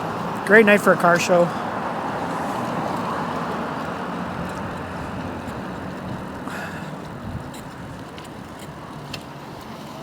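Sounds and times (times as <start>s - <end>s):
road traffic passing: 0.0s - 10.0s
vehicle going by: 0.0s - 10.0s.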